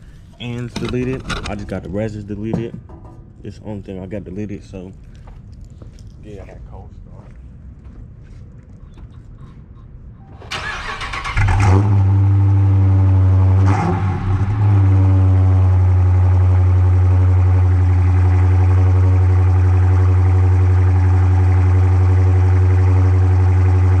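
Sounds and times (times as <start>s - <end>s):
engine idling deep and loud: 10.8s - 24.0s.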